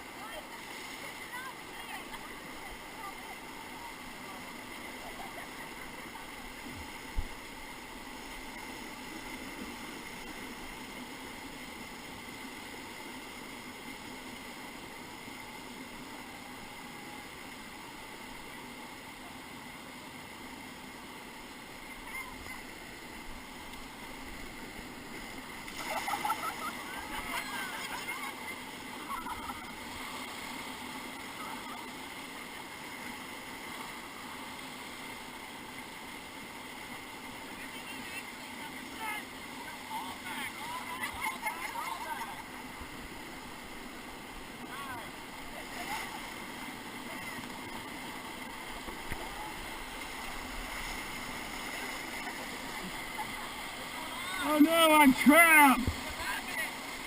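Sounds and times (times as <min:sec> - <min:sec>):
river rapids rushing: 0:21.3 - 0:57.0.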